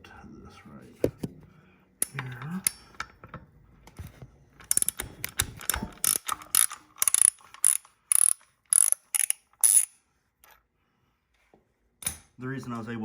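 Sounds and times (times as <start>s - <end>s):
ratchet wrench clicking: 4.6s - 10.0s.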